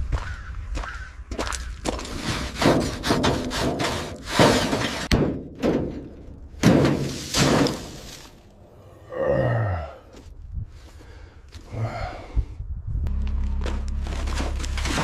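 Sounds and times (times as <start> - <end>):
heavy objects crashing and thudding: 4.4 - 8.5, 13.2 - 15.0.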